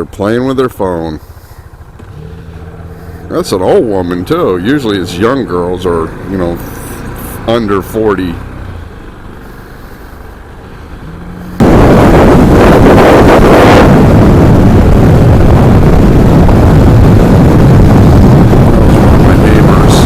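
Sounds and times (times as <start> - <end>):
motorcycle engine: 0.0 - 20.0
wind buffeting microphone: 11.0 - 20.0.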